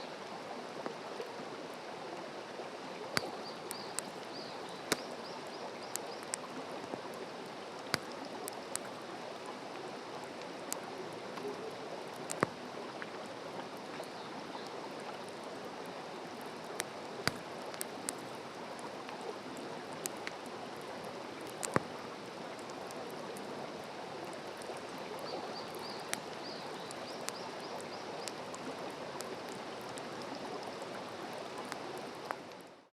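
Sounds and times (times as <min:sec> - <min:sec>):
campfire crackling and hissing: 0:00.1 - 0:32.9
faint bird chirps: 0:03.2 - 0:06.4.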